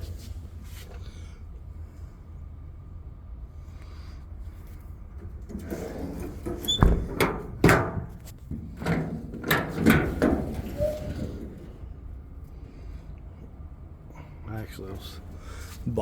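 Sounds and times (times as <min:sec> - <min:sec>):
metal compartment doors clunking: 0:05.2 - 0:12.1
rattling: 0:05.2 - 0:12.2.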